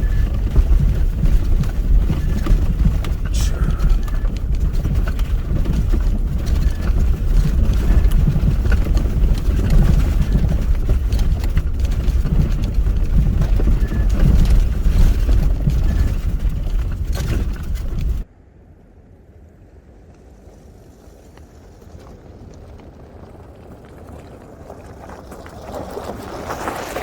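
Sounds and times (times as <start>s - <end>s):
scattered knocks: 0.0s - 18.2s
wind buffeting microphone: 0.0s - 18.3s.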